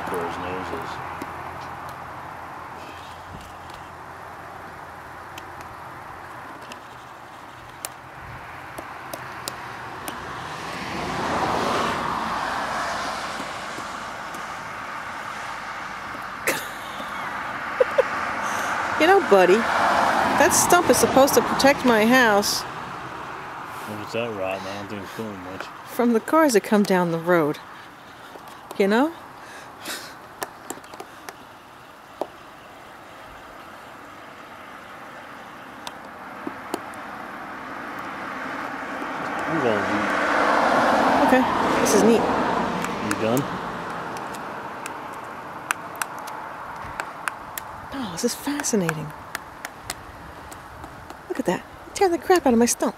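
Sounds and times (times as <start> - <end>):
car passing: 0.0 - 6.7, 7.9 - 30.4, 31.5 - 52.9
woodpecker tapping on stump: 1.1 - 2.0, 3.0 - 4.0, 4.6 - 10.3, 13.3 - 14.6, 27.8 - 29.2, 30.2 - 31.5, 32.1 - 32.4, 35.8 - 37.0, 37.9 - 39.5, 42.7 - 51.4.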